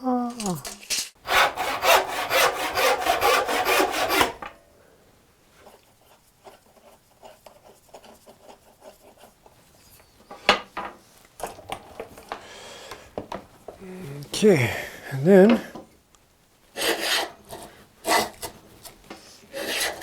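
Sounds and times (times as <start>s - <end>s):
hand saw cutting wood: 1.2s - 4.6s, 16.8s - 20.0s.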